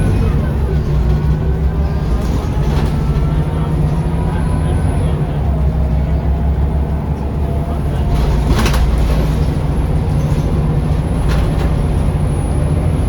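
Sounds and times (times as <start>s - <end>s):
bus engine humming: 0.0s - 13.0s.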